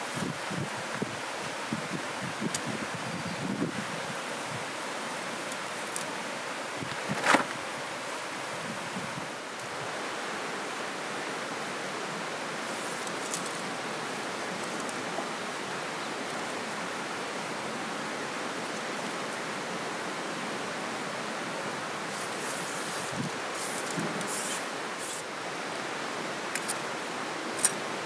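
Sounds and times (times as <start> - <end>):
river water flowing: 3.8 - 28.0
light rustles: 6.8 - 7.6.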